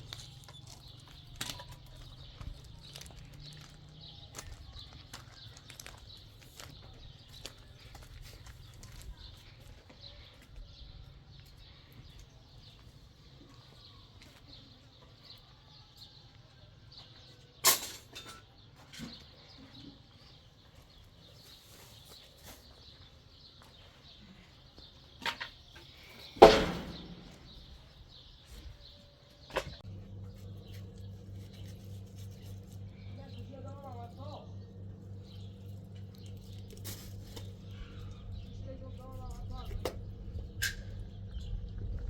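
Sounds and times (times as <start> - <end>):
low hum: 29.8 - 42.0.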